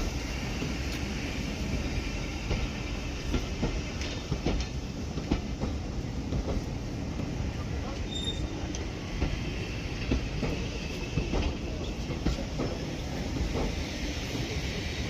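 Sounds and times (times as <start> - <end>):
train coaches rumbling: 0.0 - 15.0
faint wheel squeal: 8.0 - 8.6.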